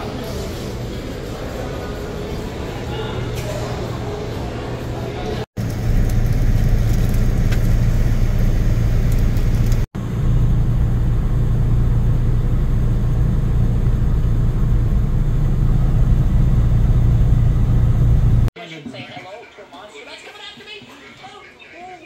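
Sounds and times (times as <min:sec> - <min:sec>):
vehicle low rumble: 0:05.6 - 0:18.5.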